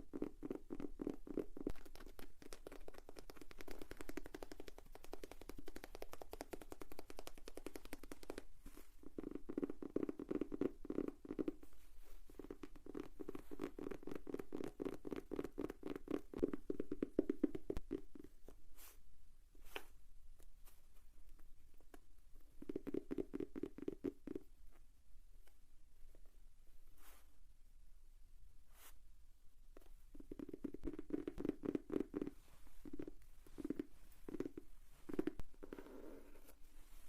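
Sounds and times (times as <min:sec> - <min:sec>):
fingertips tapping on notebook: 0:00.0 - 0:11.7, 0:12.3 - 0:18.6, 0:22.6 - 0:24.5, 0:29.8 - 0:36.6.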